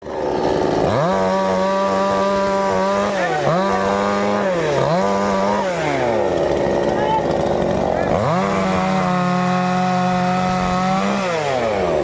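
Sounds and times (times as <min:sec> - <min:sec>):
chainsaw cutting wood: 0:00.0 - 0:12.0.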